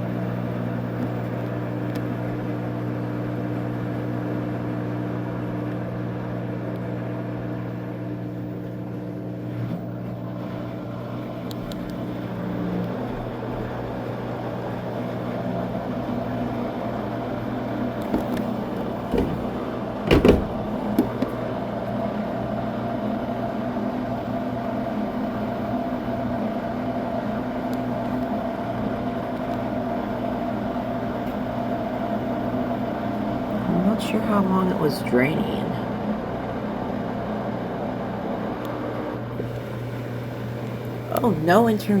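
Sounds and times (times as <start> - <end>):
washing machine drain pump humming: 0.0 - 35.0, 39.2 - 42.0
loud clunk: 18.0 - 21.4.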